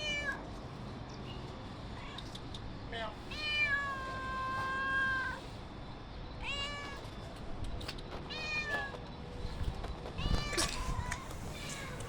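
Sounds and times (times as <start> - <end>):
cat meowing: 3.3 - 5.4, 10.2 - 12.0.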